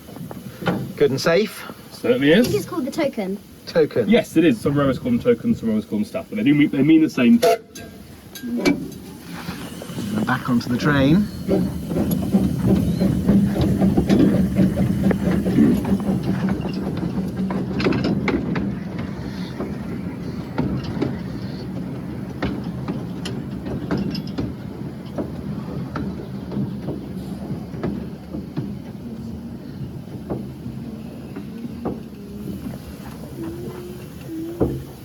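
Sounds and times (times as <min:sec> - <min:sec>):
steam locomotive rumbling: 0:00.0 - 0:35.0
metal clanks and knocks: 0:07.3 - 0:29.0.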